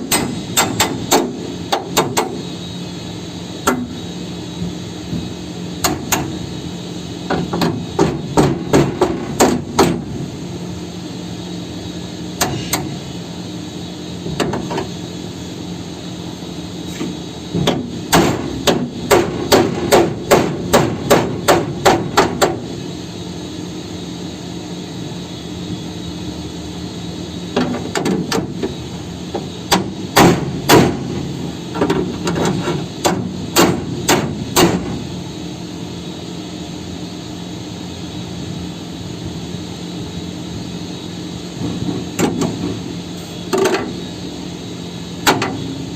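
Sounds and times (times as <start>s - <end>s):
hammer blows on metal chassis: 0.0s - 2.5s, 5.1s - 6.4s, 7.3s - 10.2s, 12.4s - 13.0s, 17.5s - 22.7s, 27.6s - 35.1s, 45.2s - 45.9s
steady low hum: 0.0s - 45.9s.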